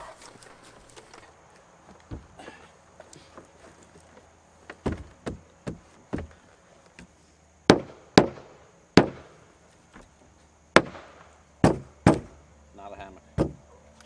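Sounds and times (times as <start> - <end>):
nails hammered into wood: 7.7 - 9.4, 10.8 - 12.4, 13.4 - 13.6.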